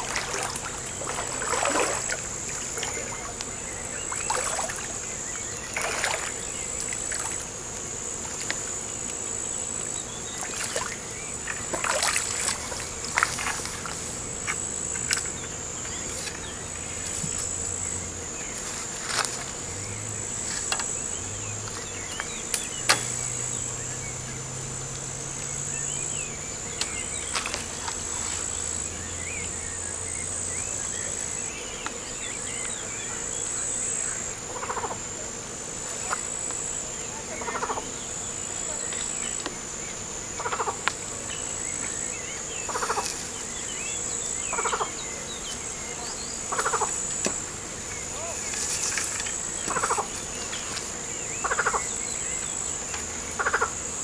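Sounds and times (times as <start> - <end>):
water splashing: 0.0 - 8.7, 9.8 - 14.3
insects trilling: 0.0 - 54.0.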